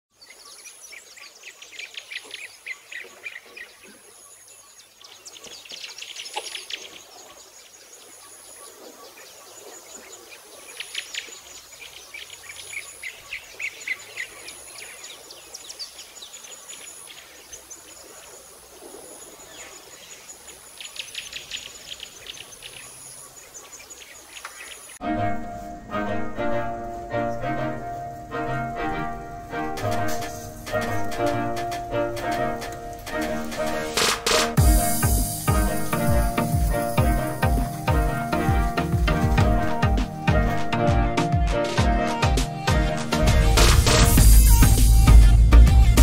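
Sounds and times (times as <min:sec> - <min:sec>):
small birds chirping trills: 0:00.1 - 0:25.0.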